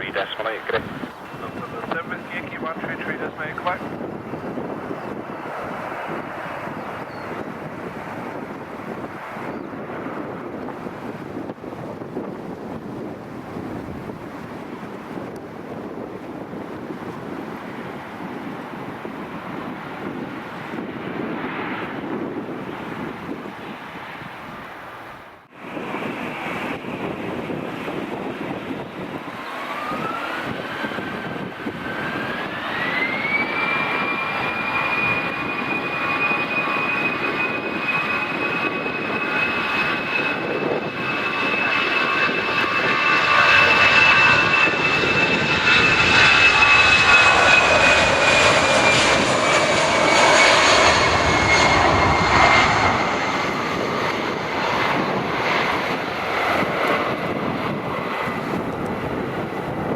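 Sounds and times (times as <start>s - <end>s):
jet engines spooling up: 0.0s - 7.5s, 29.2s - 59.9s.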